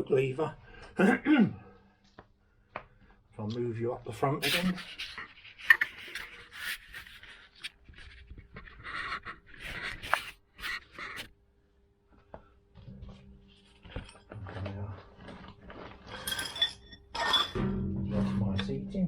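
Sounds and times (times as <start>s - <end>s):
handling scrapes rubs and clicks: 4.4s - 11.3s.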